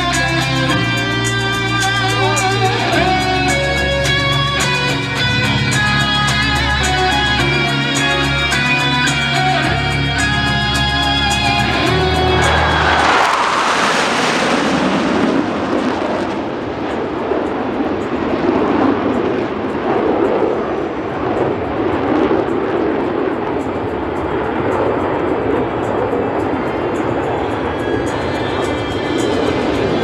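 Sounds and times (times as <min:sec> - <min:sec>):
jet aircraft flying past: 0:09.3 - 0:30.0.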